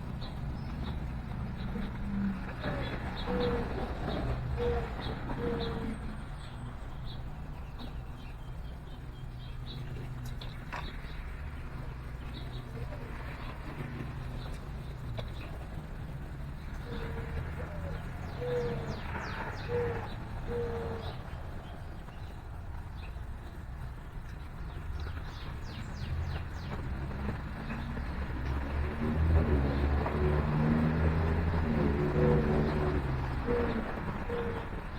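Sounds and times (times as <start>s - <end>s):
songbirds chirping: 0.0s - 34.9s
dove cooing: 0.2s - 6.5s, 12.8s - 22.0s, 27.3s - 34.9s.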